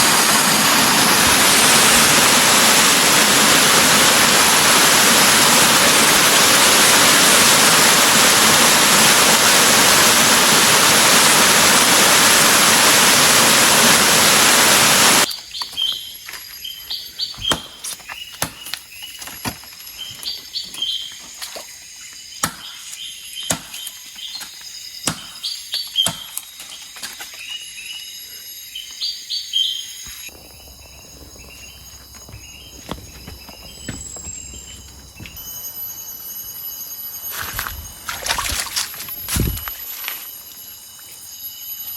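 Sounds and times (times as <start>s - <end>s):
loud rushing noise: 0.0s - 15.3s
high bird chirps: 15.2s - 39.6s.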